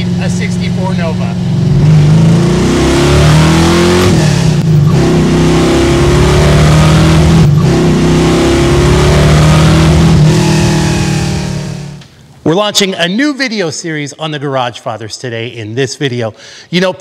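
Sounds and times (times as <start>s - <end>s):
car engine accelerating hard: 0.0s - 12.0s.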